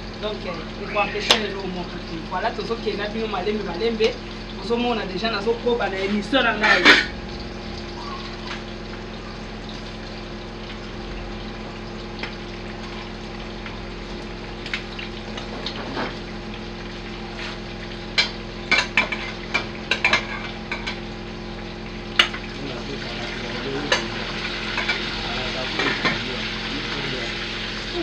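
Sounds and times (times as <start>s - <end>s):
chicken sizzling in oil: 0.0s - 28.0s
metal spoon scraping pan: 6.1s - 7.2s.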